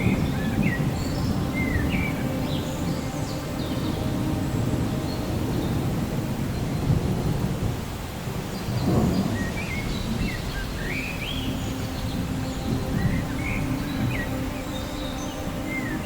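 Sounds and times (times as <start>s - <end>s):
steady rain: 0.0s - 16.0s
rolling thunder: 4.6s - 14.1s.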